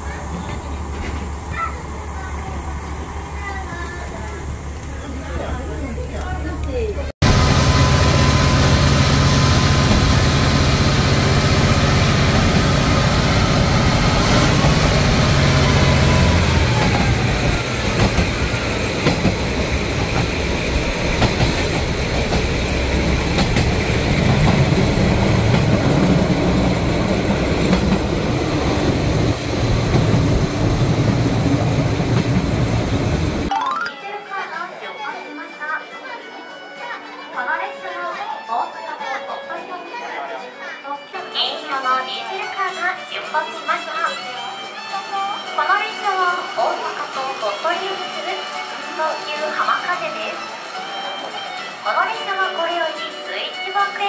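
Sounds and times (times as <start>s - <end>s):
diesel train engine drone: 0.0s - 33.5s
rumble of moving train: 0.0s - 33.5s.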